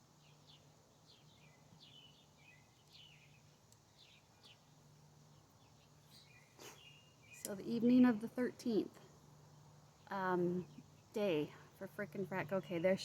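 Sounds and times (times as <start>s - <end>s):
faint bird chirps: 0.0s - 7.7s.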